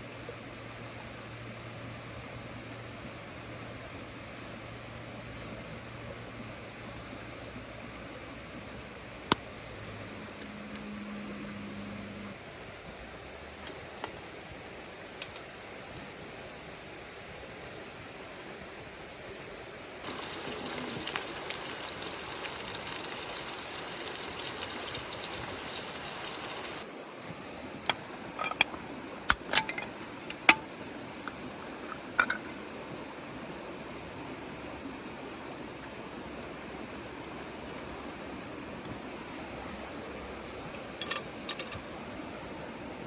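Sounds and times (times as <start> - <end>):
liquid pouring: 20.0 - 26.8
sharp clinks and knocks: 29.3 - 30.6, 41.0 - 41.8.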